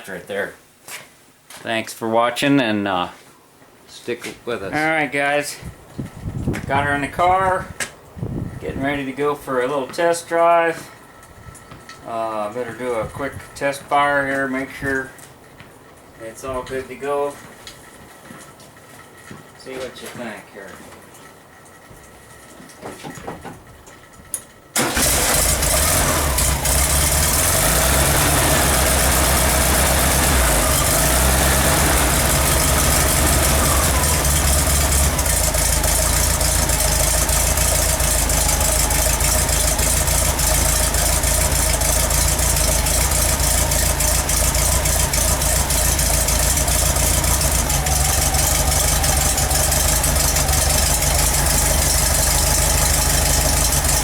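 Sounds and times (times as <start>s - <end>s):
engine starting and idling: 24.8s - 54.0s.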